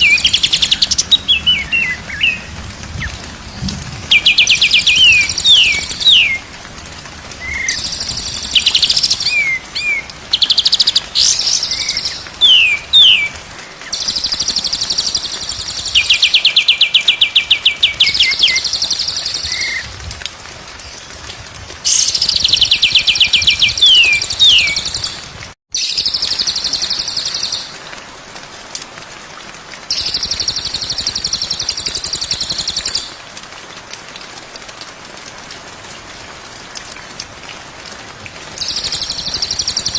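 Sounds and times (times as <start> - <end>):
bird song trills and whistles: 0.0 - 3.2, 4.1 - 6.4, 7.4 - 19.9, 21.9 - 25.2.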